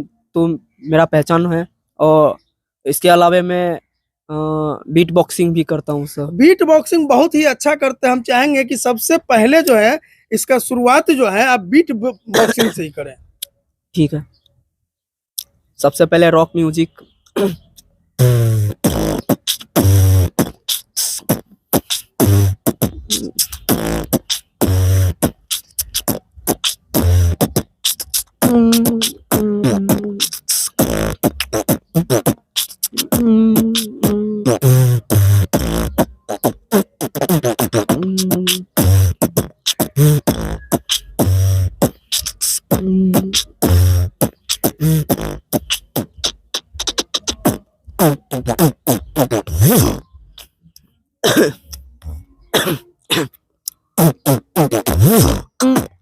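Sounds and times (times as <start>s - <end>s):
pitched vocal tones: 5.7s - 10.0s, 11.2s - 14.4s, 16.5s - 56.0s
beatboxing: 8.9s - 10.0s, 16.9s - 56.0s.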